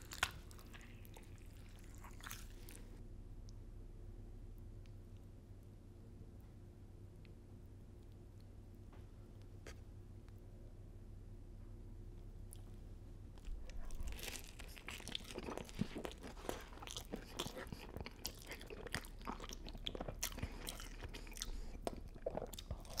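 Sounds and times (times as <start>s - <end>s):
biting and chewing sandwich: 0.0s - 2.9s, 13.4s - 23.0s
food crunching: 0.0s - 3.0s, 13.4s - 23.0s.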